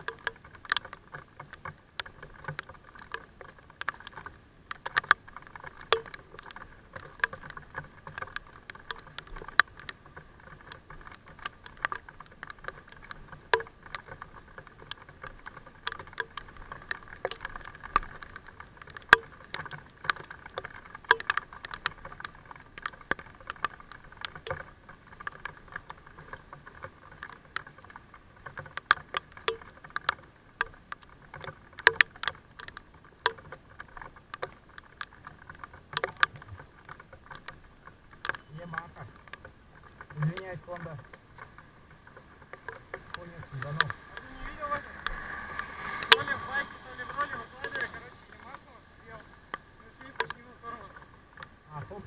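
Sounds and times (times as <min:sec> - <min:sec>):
sharp clicks and taps: 0:28.4 - 0:52.0.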